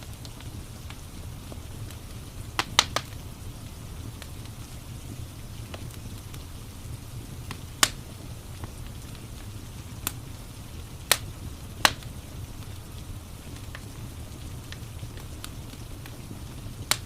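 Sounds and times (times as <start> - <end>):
burning logs popping: 0.0 - 17.0
rain hissing: 0.0 - 17.0
wood fire crackling: 0.0 - 17.0.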